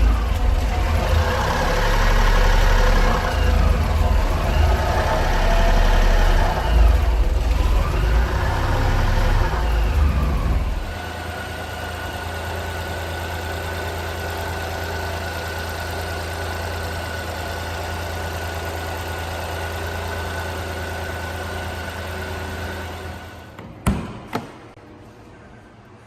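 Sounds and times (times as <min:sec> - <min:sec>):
small engine idling: 0:00.0 - 0:23.6
sharp knocks: 0:23.6 - 0:24.8.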